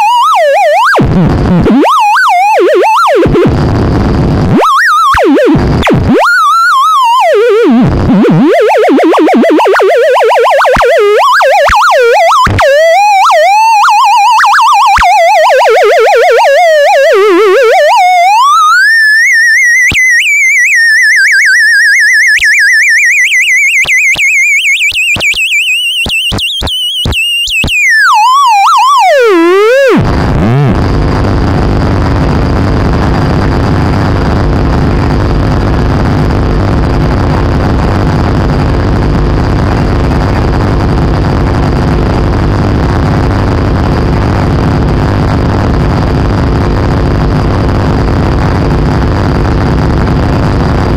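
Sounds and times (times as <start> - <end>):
wavering theremin-like tone: 0.0 - 3.5, 4.5 - 25.3, 25.9 - 30.7
rumbling noise drone: 1.0 - 1.9, 3.2 - 6.2, 30.0 - 50.9.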